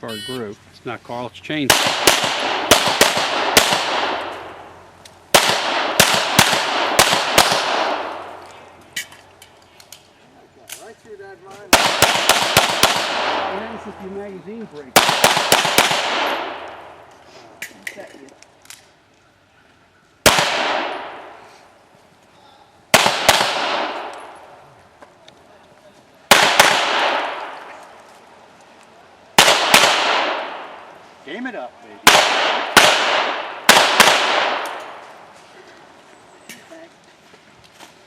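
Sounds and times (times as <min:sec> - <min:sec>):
pistol shots with echo: 0:01.7 - 0:04.6, 0:05.3 - 0:08.4, 0:11.7 - 0:13.7, 0:14.9 - 0:17.0, 0:20.2 - 0:21.4, 0:22.9 - 0:24.4, 0:26.3 - 0:27.6, 0:29.4 - 0:30.8, 0:32.0 - 0:35.0.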